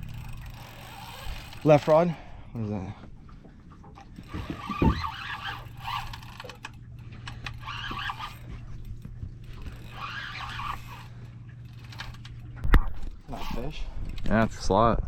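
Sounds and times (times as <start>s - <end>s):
fishing reel ticking rattle: 0.0s - 2.2s, 4.2s - 12.5s, 13.2s - 14.3s
steady low hum: 0.0s - 15.0s.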